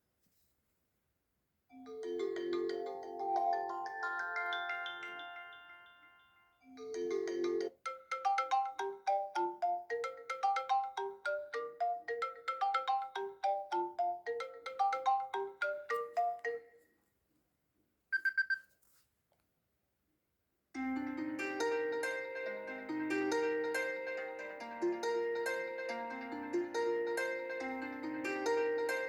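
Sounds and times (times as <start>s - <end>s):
phone ringtone melody: 1.8s - 16.8s.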